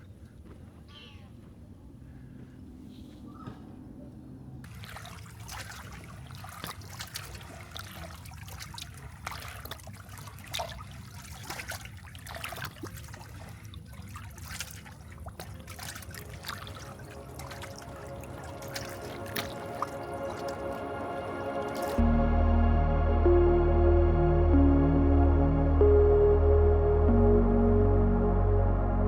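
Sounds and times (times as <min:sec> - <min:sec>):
water splashing and trickling: 0:04.6 - 0:22.1.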